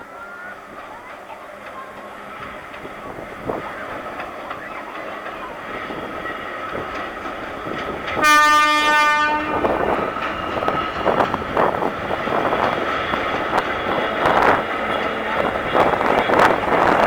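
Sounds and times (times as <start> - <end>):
train wheels clattering and rumbling: 0.7 - 17.0
locomotive horn blast: 8.2 - 10.0.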